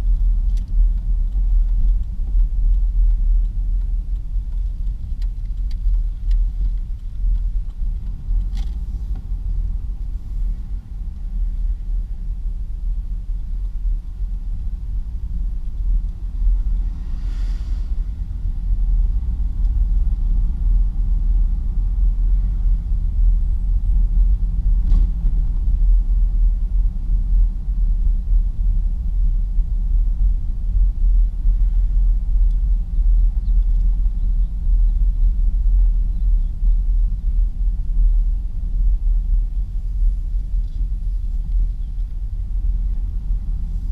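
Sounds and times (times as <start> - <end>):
truck engine and road noise: 0.0 - 43.9
brief hiss: 17.0 - 18.0.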